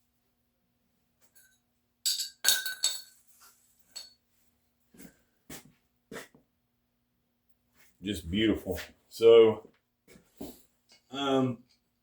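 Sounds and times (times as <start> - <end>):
metal hand tools clinking: 1.4 - 3.3, 3.9 - 4.2.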